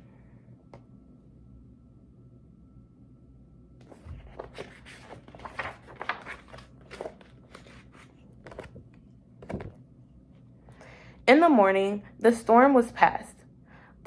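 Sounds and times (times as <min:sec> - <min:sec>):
book page turning: 0:03.8 - 0:09.7
paper rustling and crinkling: 0:03.8 - 0:09.8.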